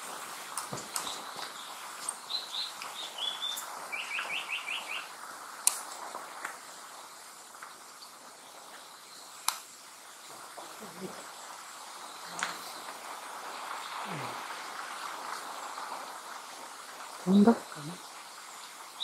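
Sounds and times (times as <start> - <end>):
steady background hiss: 0.0 - 19.0
bird singing whistled notes: 1.0 - 5.1
sharp clicks: 9.4 - 9.6.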